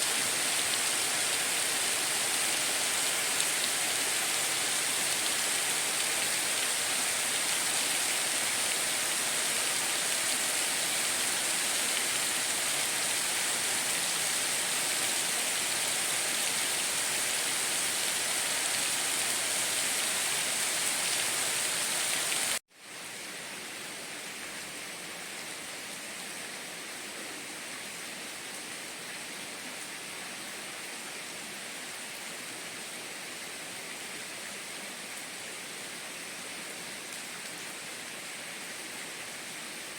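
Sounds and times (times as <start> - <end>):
heavy rain hissing: 0.0 - 22.6.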